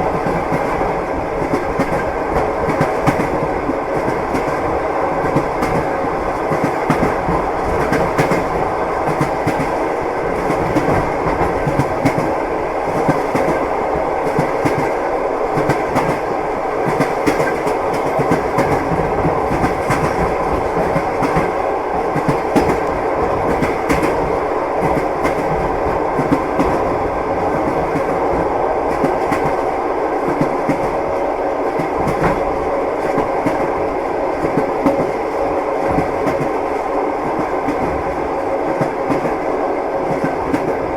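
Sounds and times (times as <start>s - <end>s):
train rolling rumble: 0.0s - 40.9s
train wheels clacking over joints: 15.6s - 21.6s.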